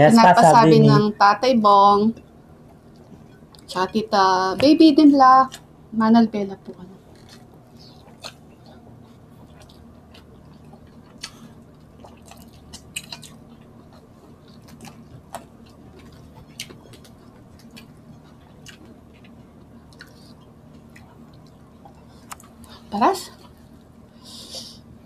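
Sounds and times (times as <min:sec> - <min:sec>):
faint low hum: 0:00.0 - 0:25.0
people chewing and lip-smacking: 0:07.0 - 0:22.8.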